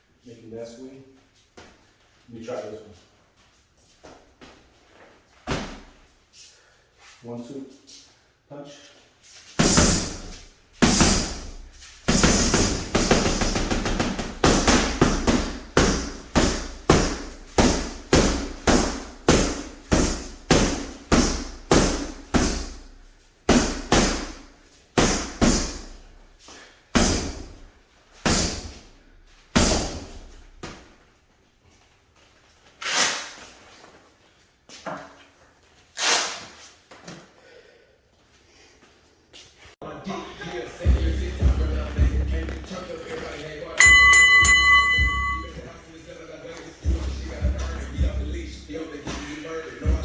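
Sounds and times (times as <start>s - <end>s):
punches thudding on a heavy bag: 9.6s - 22.9s, 23.5s - 26.0s, 27.0s - 28.9s, 29.6s - 30.8s.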